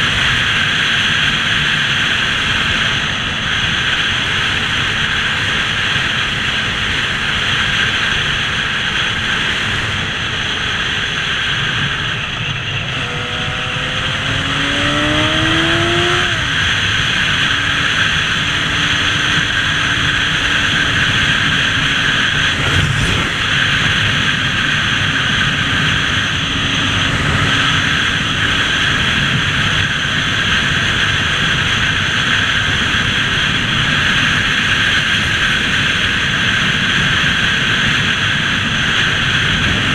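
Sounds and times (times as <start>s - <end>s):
motorcycle engine revving up: 10.4s - 31.4s
wind rushing: 12.9s - 29.6s.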